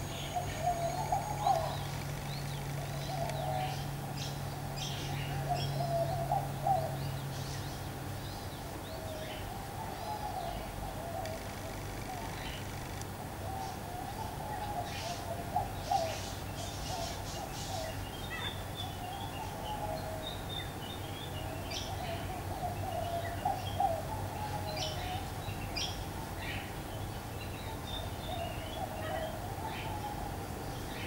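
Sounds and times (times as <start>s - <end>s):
low wavering bird call: 0.0s - 2.0s.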